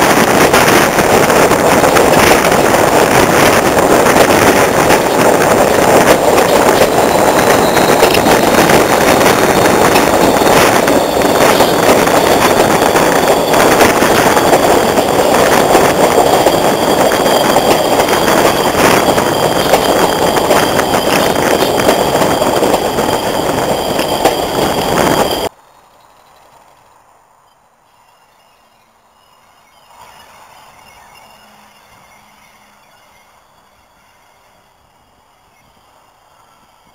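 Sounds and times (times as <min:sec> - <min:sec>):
diesel locomotive engine working hard: 0:00.0 - 0:25.5, 0:29.9 - 0:36.9
high whistle: 0:04.2 - 0:25.5, 0:29.3 - 0:36.9.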